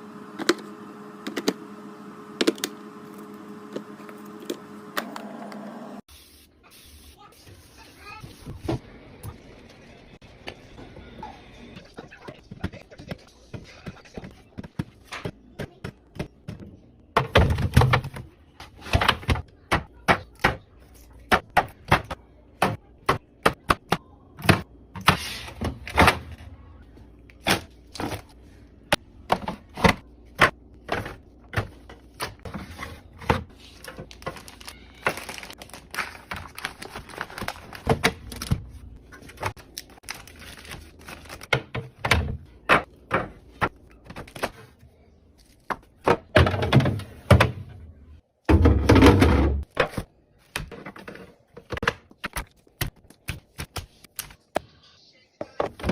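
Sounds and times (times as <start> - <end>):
containers clicking and thunking on shelves: 14.2 - 26.4, 28.9 - 35.4, 41.3 - 44.7, 45.6 - 53.7
packaging rustling: 33.6 - 38.5, 39.2 - 41.5.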